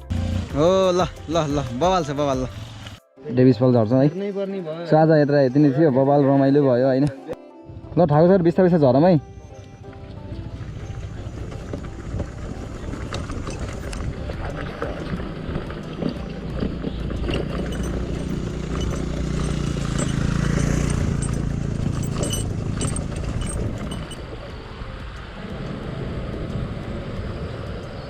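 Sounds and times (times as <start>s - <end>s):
motorcycle engine running: 0.0s - 1.0s, 7.7s - 28.0s
knocks and rattles: 15.7s - 24.2s.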